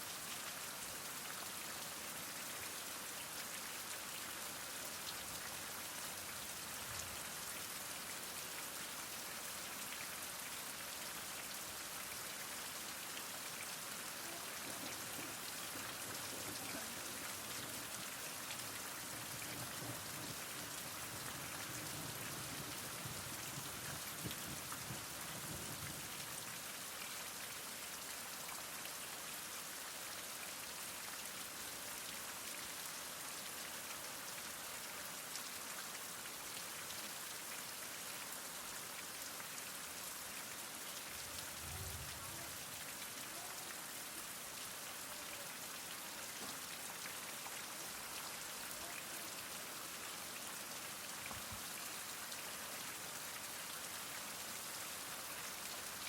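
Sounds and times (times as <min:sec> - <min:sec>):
heavy rain falling: 0:11.4 - 0:26.8, 0:40.2 - 0:51.9.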